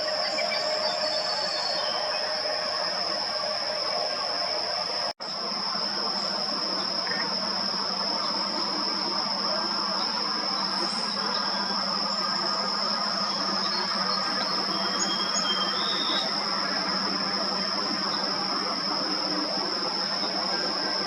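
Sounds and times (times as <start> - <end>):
low hum: 0.0 - 21.0
steady rushing outdoor noise: 0.0 - 21.0
faint bird chirps: 12.9 - 16.8.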